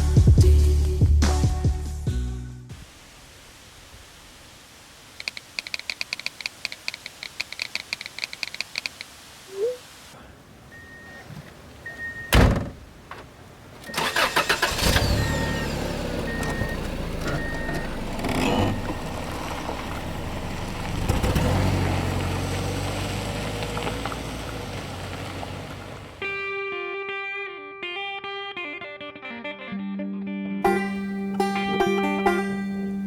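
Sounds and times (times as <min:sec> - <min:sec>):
car engine starting and running: 0:10.8 - 0:26.2
sharp thump: 0:12.3 - 0:12.8.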